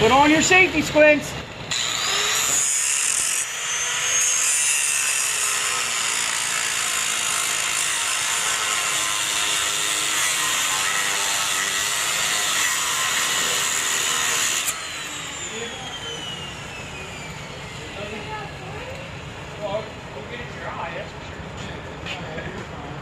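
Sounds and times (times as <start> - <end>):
power tool cutting metal: 0.0 - 19.0.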